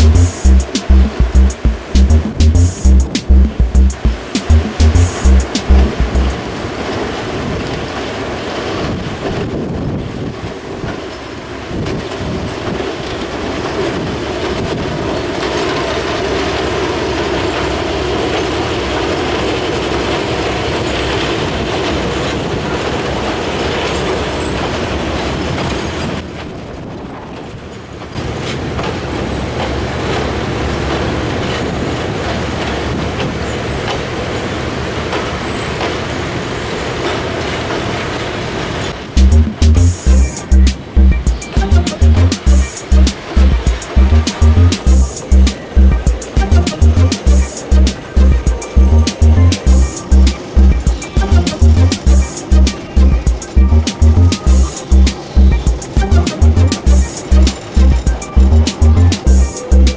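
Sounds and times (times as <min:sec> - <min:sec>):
music: 0:00.0 - 0:06.4, 0:39.2 - 0:59.9
wheels clacking over rail joints: 0:06.4 - 0:39.2
locomotive engines rumbling: 0:39.0 - 0:59.9.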